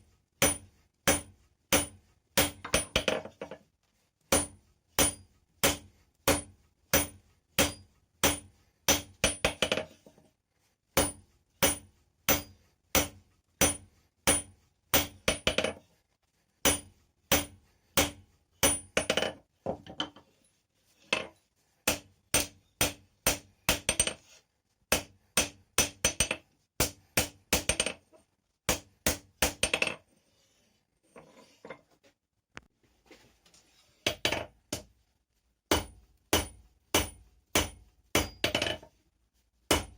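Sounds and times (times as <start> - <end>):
hammer striking metal on anvil: 0.4 - 3.2, 4.3 - 9.8, 11.0 - 15.7, 16.6 - 19.2, 21.9 - 24.1, 24.9 - 28.0, 35.7 - 38.8.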